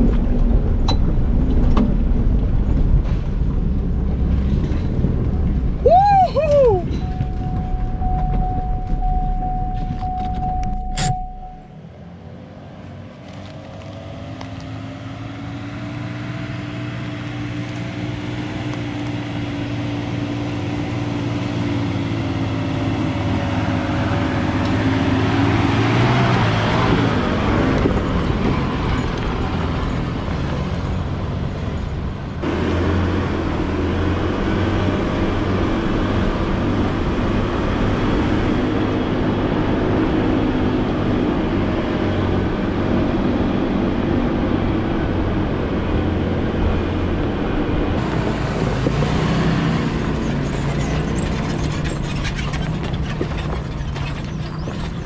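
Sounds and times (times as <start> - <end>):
engine running under load: 0.0 - 55.0
steady high tone: 5.9 - 11.8.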